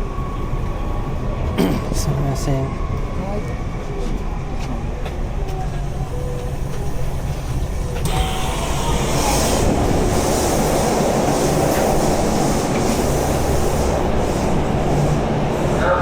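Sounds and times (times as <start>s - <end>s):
train wheels rumbling on rail: 0.0s - 16.0s
hiss: 8.0s - 15.2s.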